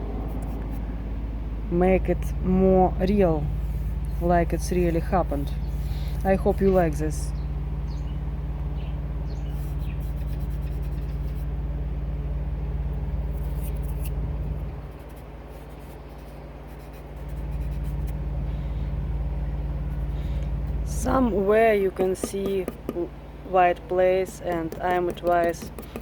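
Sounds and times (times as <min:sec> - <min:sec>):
low mechanical hum: 0:00.0 - 0:26.0
crayon scratching on paper: 0:03.6 - 0:07.0, 0:21.0 - 0:23.0, 0:23.9 - 0:26.0.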